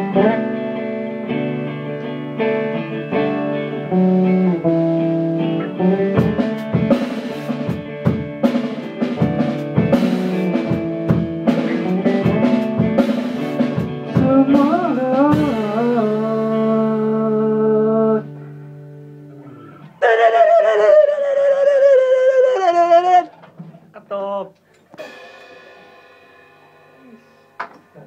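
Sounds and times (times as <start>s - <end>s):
band playing guitar and drums: 0.0s - 20.8s, 24.9s - 27.0s
person singing: 14.1s - 18.4s.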